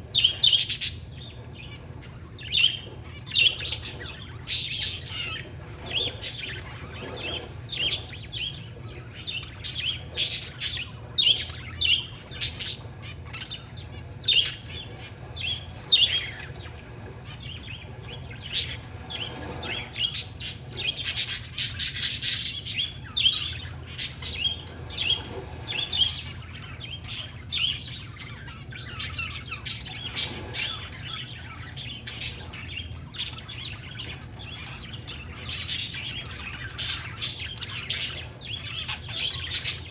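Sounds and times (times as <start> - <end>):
birds chirping and chattering: 0.0 - 39.9
steady low hum: 0.0 - 39.9.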